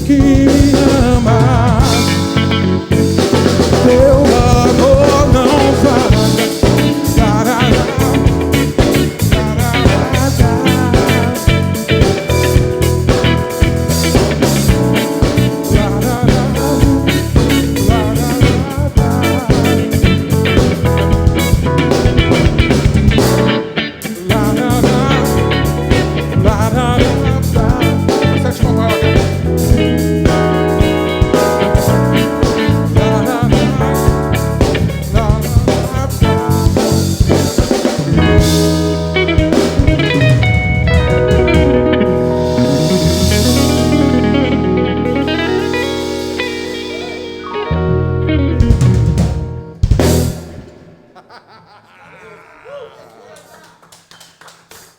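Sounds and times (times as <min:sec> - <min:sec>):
live soul-funk band: 0:00.0 - 0:50.6
electric guitar lead: 0:00.0 - 0:51.1.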